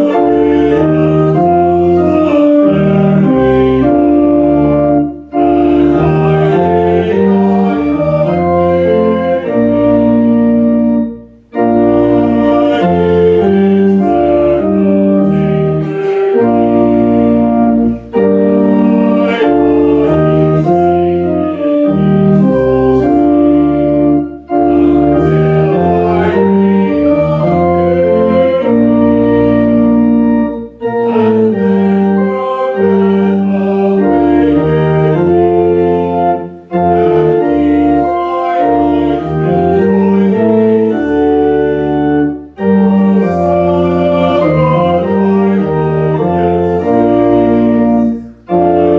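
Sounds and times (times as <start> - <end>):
organ playing sustained chords: 0.0 - 48.9.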